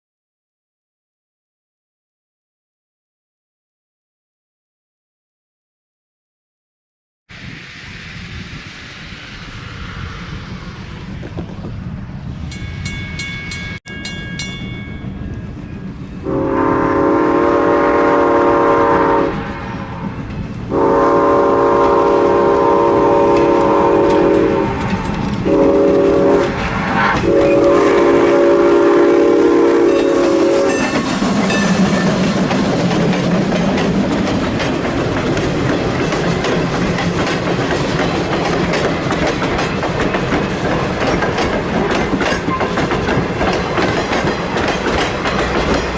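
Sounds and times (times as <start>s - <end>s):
train wheels clacking on rails: 12.4s - 45.9s
bell ringing: 12.5s - 16.0s
train horn: 16.2s - 31.6s.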